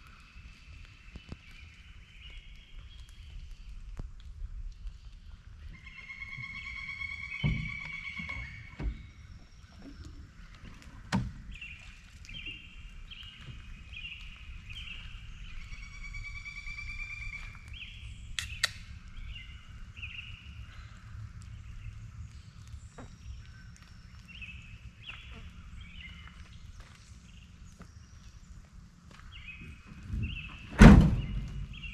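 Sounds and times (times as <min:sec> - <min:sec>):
sharp snaps: 0:18.4 - 0:19.2.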